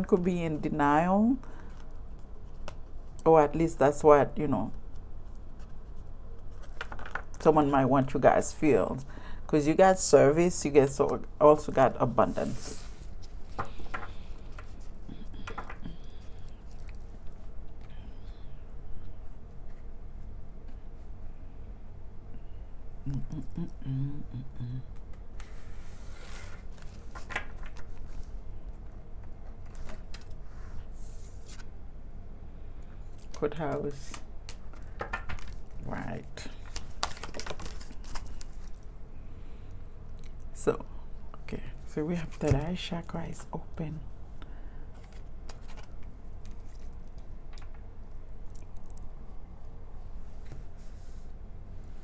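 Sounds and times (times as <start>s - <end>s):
steady low hum: 0.0s - 52.0s
cards being shuffled: 6.5s - 7.4s, 12.3s - 17.4s, 25.0s - 28.3s, 29.2s - 30.4s, 33.2s - 35.8s, 36.5s - 38.9s, 45.0s - 47.8s.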